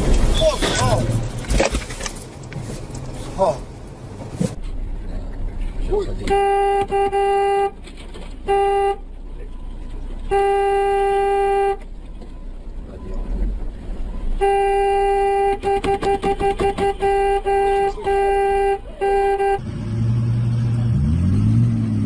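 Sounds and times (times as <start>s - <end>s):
car horn honking: 6.2s - 7.8s, 8.4s - 9.2s, 10.2s - 11.9s, 14.3s - 19.7s
low engine note rising: 19.6s - 22.0s.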